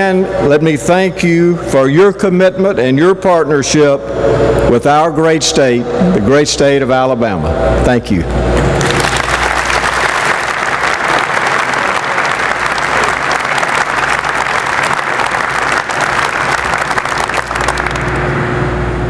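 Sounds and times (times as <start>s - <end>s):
audience applauding: 8.7s - 18.3s.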